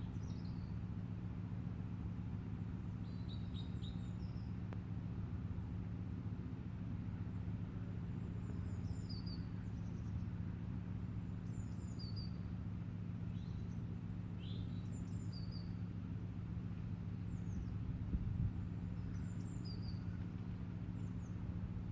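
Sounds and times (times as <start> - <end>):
steady low hum: 0.0 - 21.9
songbird chirping: 3.0 - 4.6, 8.1 - 10.4, 11.3 - 12.6, 13.3 - 16.1, 18.4 - 21.5.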